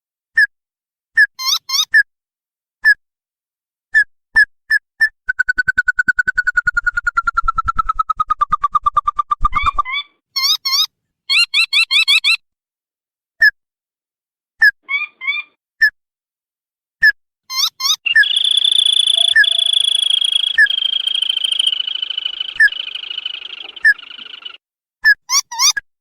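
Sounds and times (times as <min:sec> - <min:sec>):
bird sharp chirps: 0:17.5 - 0:24.6
bird rattling trill: 0:18.1 - 0:24.6.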